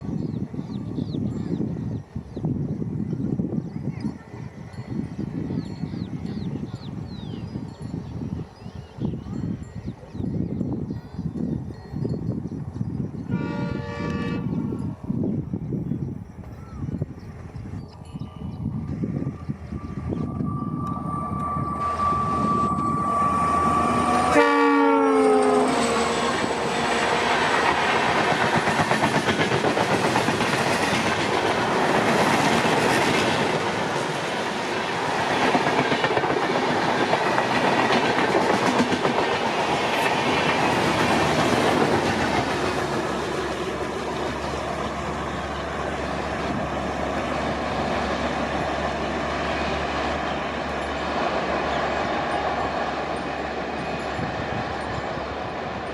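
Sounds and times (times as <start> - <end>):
diesel locomotive passing: 0.0 - 55.9
train horn: 13.3 - 14.9, 20.8 - 27.8
train wheels clattering over rail joints: 25.8 - 47.4.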